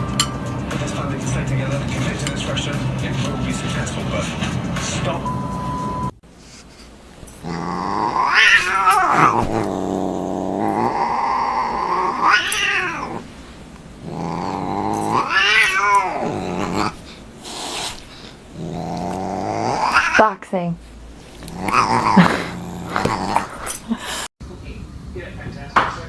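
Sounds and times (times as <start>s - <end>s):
cat yowling: 7.4s - 13.2s, 14.2s - 17.0s, 19.0s - 20.3s, 21.3s - 23.9s.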